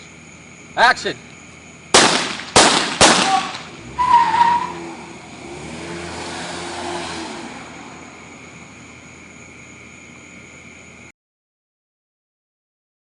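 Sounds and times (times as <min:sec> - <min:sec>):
gunshots: 0:01.9 - 0:03.8.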